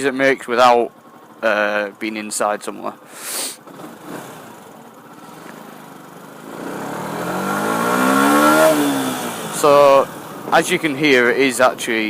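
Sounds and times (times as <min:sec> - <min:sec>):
motorcycle engine revving: 0:02.9 - 0:12.0.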